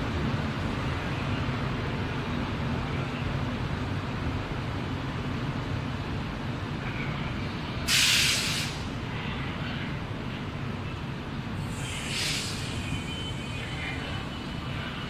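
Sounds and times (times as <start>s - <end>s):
air brake hiss: 7.9s - 8.9s, 11.6s - 13.1s.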